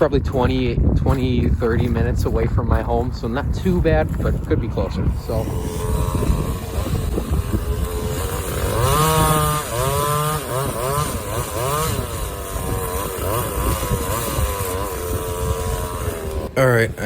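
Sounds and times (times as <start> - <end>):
chainsaw engine revving: 5.0 - 17.0.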